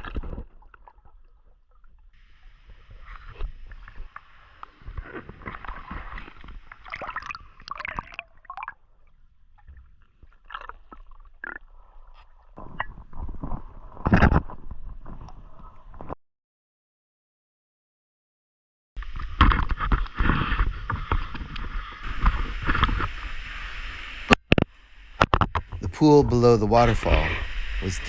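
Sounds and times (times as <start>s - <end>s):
water splashing and gurgling: 2.6s - 9.0s.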